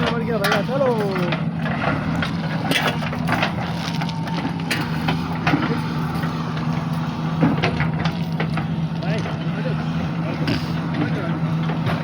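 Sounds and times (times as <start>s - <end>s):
sharp clanks and knocks: 0.0s - 3.9s, 4.5s - 9.4s
diesel engine running: 0.0s - 12.0s.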